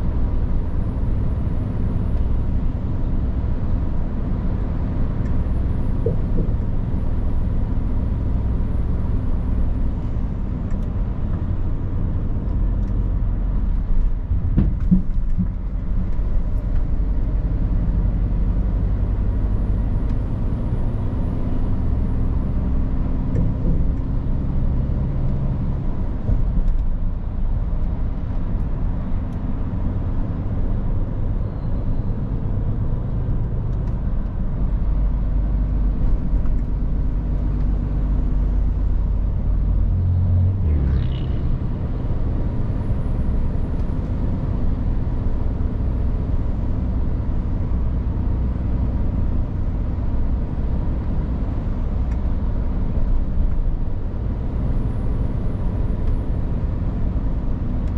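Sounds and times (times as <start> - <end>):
tyre and road noise: 0.0 - 57.9.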